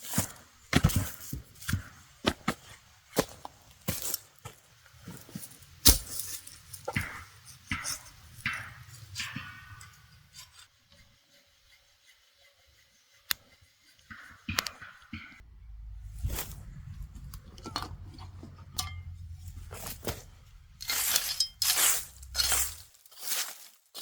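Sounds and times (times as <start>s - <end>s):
scraping strokes: 6.0s - 23.6s.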